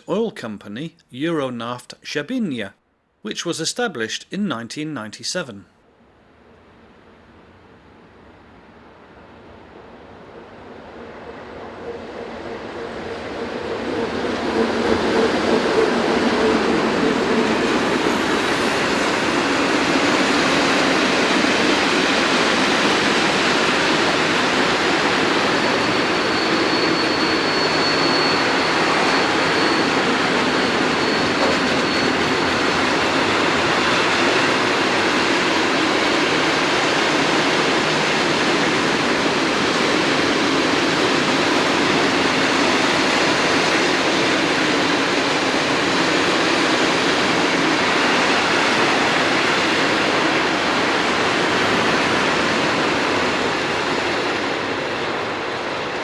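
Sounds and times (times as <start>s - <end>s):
train wheel and rail noise: 5.9s - 56.0s
faint high squeal: 25.6s - 32.9s.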